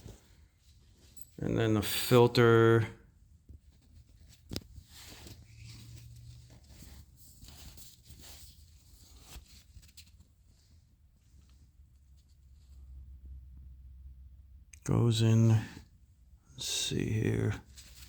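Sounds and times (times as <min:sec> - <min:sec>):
rustling and scraping: 0:00.0 - 0:02.2, 0:03.3 - 0:13.1, 0:17.6 - 0:18.0.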